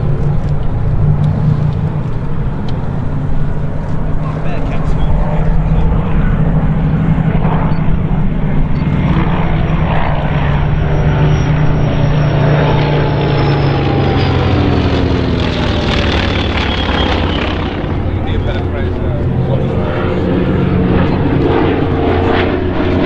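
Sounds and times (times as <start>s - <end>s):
propeller planes droning past: 0.0s - 23.0s.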